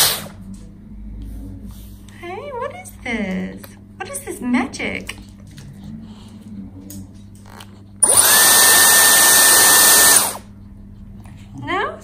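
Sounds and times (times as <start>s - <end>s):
hairdryer running: 0.0s - 0.4s, 8.0s - 10.5s.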